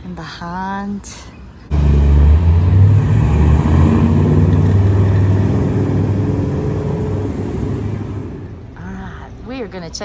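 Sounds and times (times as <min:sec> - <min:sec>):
vehicle engine low rumble: 0:01.7 - 0:09.2.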